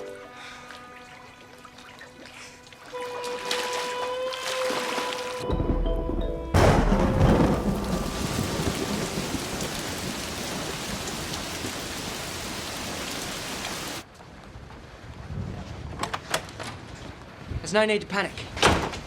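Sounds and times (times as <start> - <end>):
thunder rumbling: 5.5 - 14.0
heavy rain: 6.6 - 14.1.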